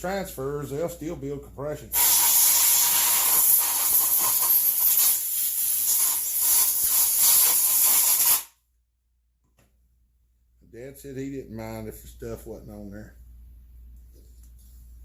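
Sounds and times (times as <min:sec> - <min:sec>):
pressurised spray hissing: 0:01.9 - 0:08.5.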